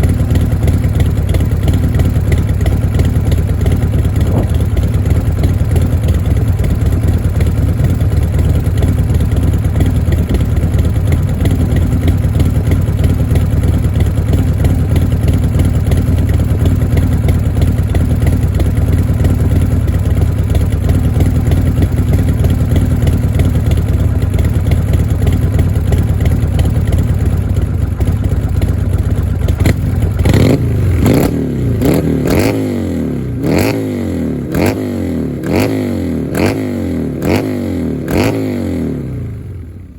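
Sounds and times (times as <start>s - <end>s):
motorcycle engine idling and revving: 0.0s - 39.9s
exhaust cracks: 1.2s - 8.0s.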